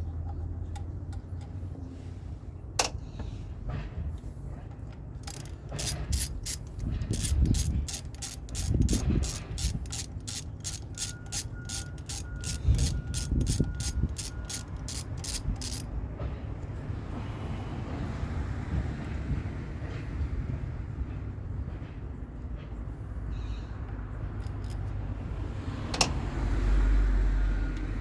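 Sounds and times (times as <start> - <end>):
ratchet wrench clicking: 5.2 - 15.9, 24.4 - 24.9.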